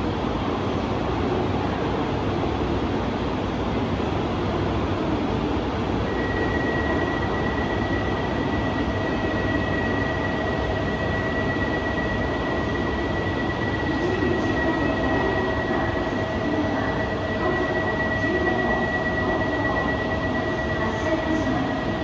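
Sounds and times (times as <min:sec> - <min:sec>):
steady high tone: 0:06.1 - 0:22.0.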